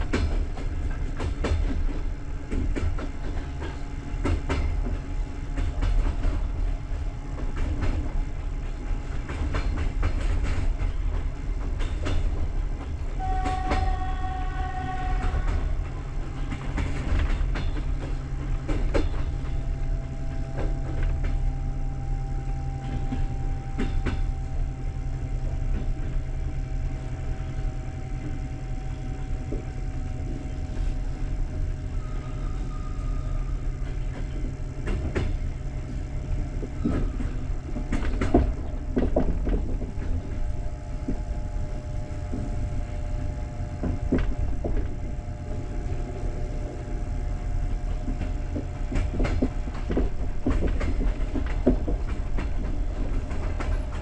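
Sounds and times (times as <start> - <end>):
train carriage rumbling on track: 0.0 - 54.0
wheels knocking: 33.7 - 42.6, 47.6 - 54.0.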